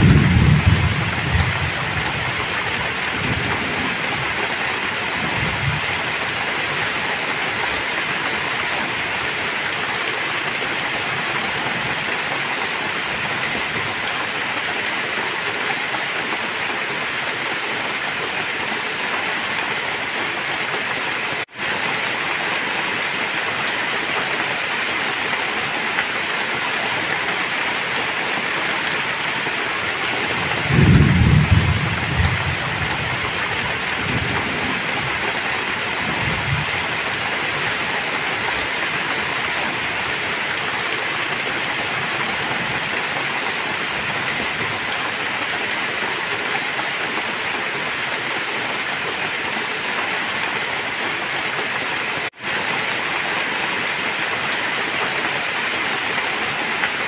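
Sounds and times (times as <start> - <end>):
thunder rumbling: 0.0 - 4.4, 30.2 - 37.2
heavy rain pouring: 0.0 - 57.0.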